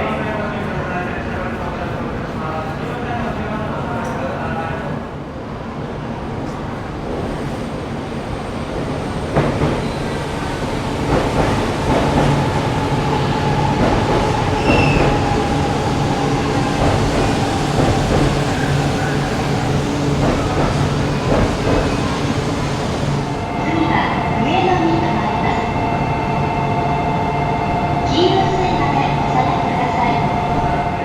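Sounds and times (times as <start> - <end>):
train rumbling: 0.0 - 31.0
train clicks: 11.0 - 23.3.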